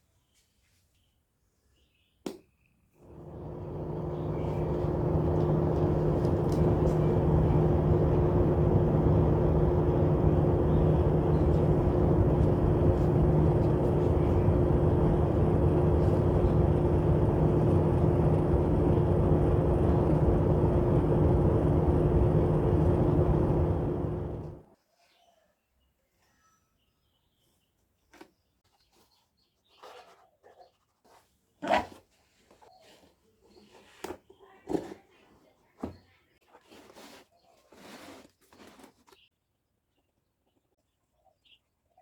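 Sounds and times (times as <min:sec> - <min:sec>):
low two-tone motor hum: 0:03.1 - 0:24.6
small fans blowing air: 0:03.1 - 0:24.6.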